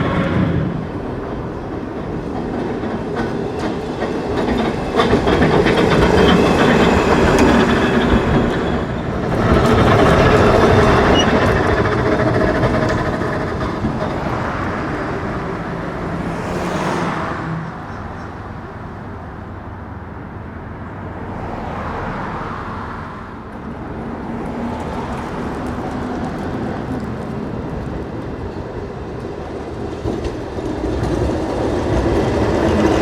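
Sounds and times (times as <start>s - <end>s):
streetcar rolling on rails: 0.0s - 33.0s
wheels clicking over rail joints: 1.1s - 14.7s, 24.7s - 33.0s.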